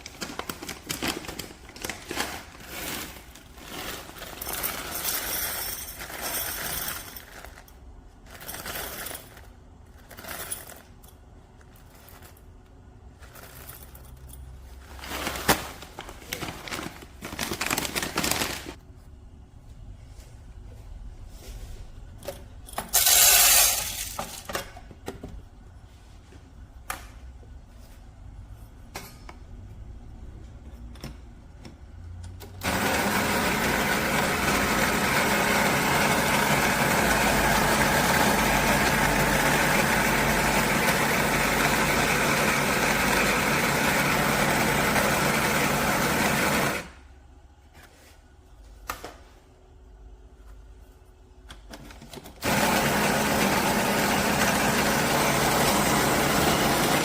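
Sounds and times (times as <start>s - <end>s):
espresso machine motor running: 32.6s - 46.9s, 52.4s - 57.0s.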